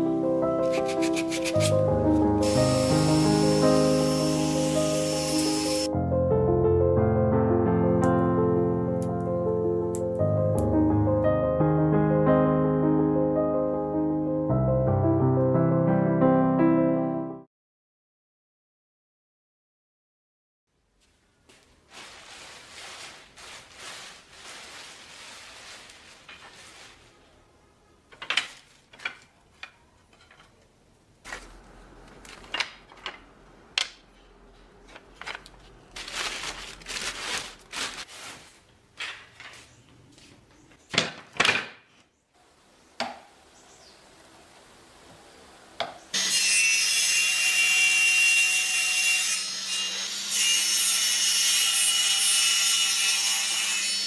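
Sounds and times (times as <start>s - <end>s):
sawing or rasping wood: 0.6s - 5.9s
small power tool running: 2.4s - 5.9s.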